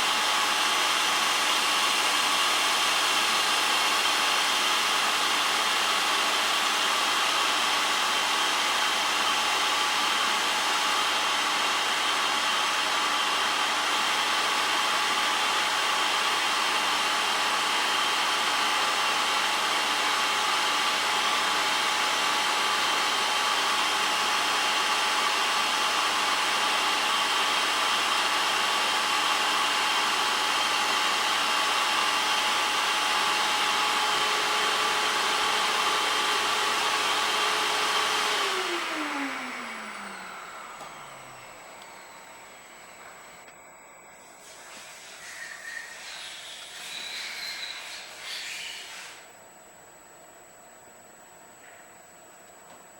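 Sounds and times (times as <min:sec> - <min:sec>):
grinding machine whirring: 0:27.2 - 0:49.3.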